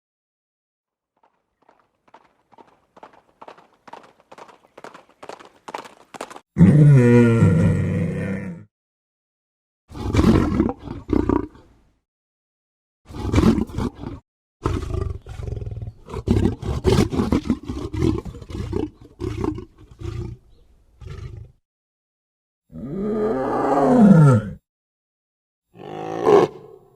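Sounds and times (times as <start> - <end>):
tiger roaring and growling: 6.6 - 8.7, 9.9 - 11.6, 13.1 - 20.4, 22.7 - 24.6, 25.8 - 26.9.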